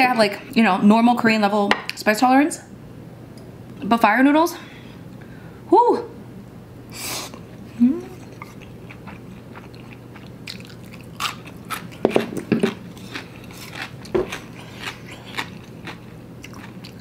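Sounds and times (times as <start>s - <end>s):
chewing noodles: 8.2s - 17.0s.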